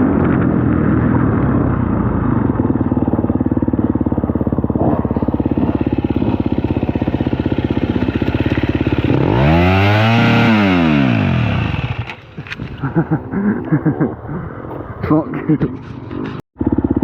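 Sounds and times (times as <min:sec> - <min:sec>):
dirt bike engine revving: 0:02.2 - 0:14.0
sharp clicks: 0:11.2 - 0:12.9.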